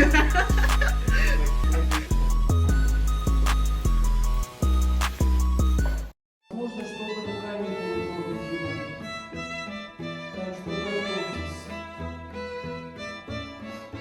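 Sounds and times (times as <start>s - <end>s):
bowed string music: 6.5s - 14.0s.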